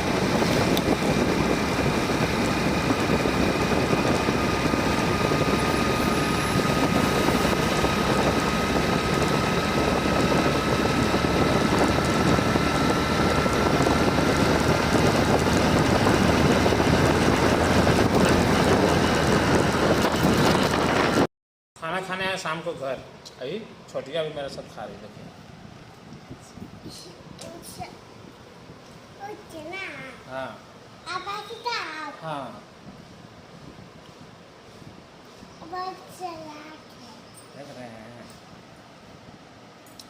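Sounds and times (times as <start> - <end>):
faint drifting whine: 0.0 - 21.3
vehicle engine and road noise: 0.0 - 21.3.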